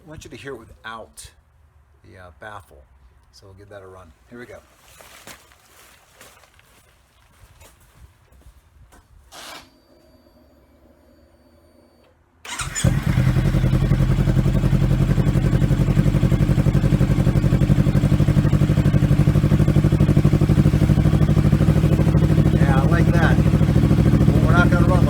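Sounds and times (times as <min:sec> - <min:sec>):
motorcycle engine idling: 0:12.5 - 0:25.0.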